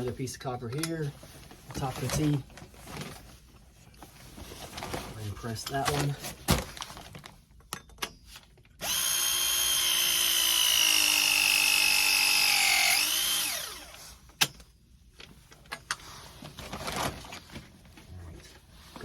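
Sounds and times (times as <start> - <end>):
press tool motor whine: 8.8 - 14.0.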